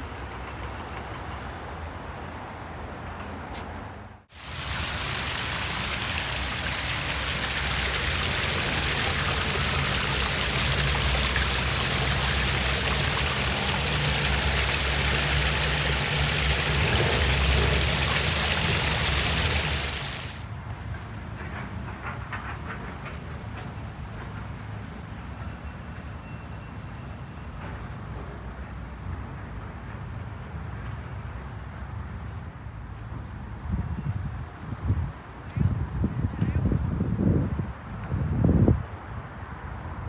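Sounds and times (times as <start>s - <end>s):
water rushing: 4.3s - 20.4s.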